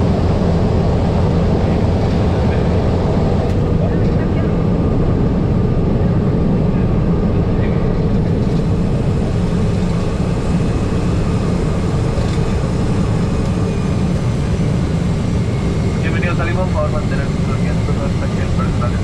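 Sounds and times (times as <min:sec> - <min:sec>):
turboprop engine droning: 0:00.0 - 0:19.0.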